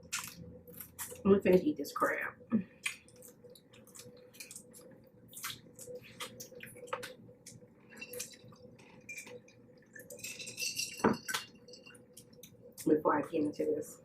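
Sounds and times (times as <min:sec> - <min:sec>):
crab shell cracking and squishing: 0:00.0 - 0:01.3, 0:02.7 - 0:10.6, 0:11.2 - 0:12.9
faint steady hum: 0:00.0 - 0:14.0.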